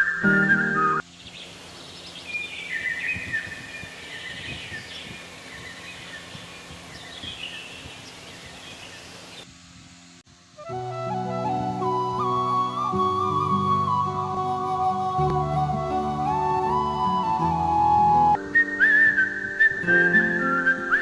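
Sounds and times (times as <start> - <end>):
birds chirping: 0.0 - 9.5
outdoor background hiss: 0.0 - 21.0.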